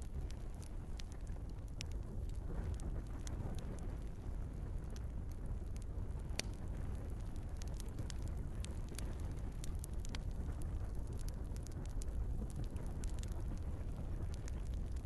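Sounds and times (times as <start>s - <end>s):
burning logs crackling and popping: 0.0s - 15.0s
low rumble of flames: 0.0s - 15.0s.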